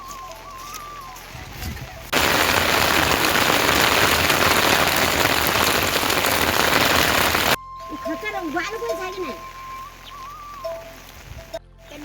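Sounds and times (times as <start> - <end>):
heavy rain falling: 2.1 - 7.6.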